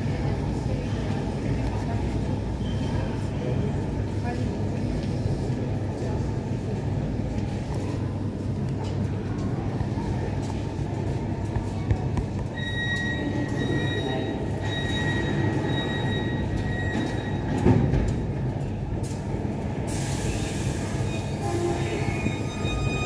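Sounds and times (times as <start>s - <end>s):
train low rumble: 0.0s - 23.0s
train wheels squealing: 12.6s - 17.5s, 20.3s - 23.0s
hiss: 19.9s - 21.3s.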